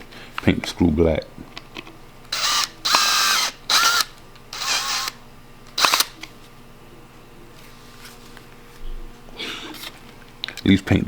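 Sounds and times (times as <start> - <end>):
power drill whining: 2.3 - 5.2, 5.8 - 6.2.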